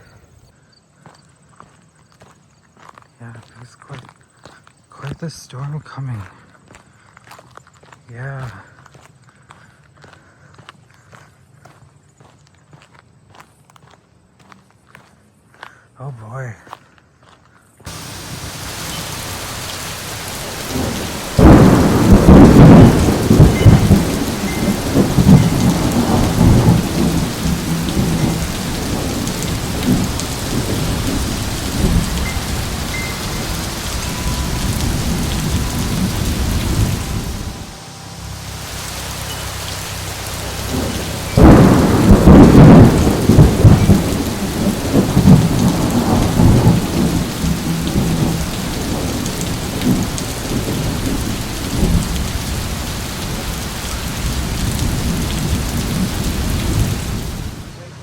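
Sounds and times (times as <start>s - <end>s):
rolling thunder: 17.9s - 57.7s
heavy rain pouring: 17.9s - 58.0s.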